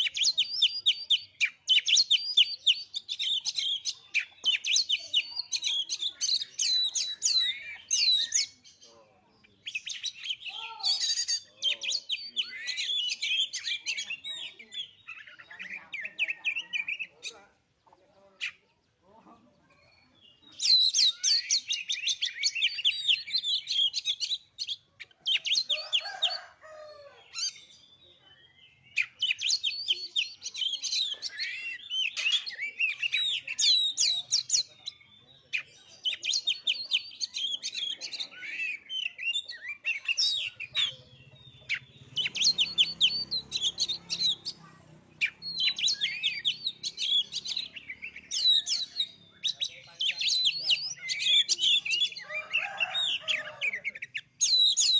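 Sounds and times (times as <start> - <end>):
bird whistling song: 0.0 - 8.6, 28.6 - 44.6, 45.2 - 52.1.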